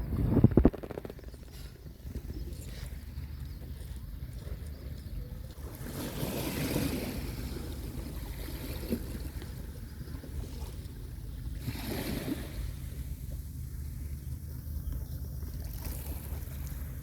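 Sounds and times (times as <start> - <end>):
steady low rumble: 0.0 - 5.6
small waves washing onto beach: 5.6 - 14.2.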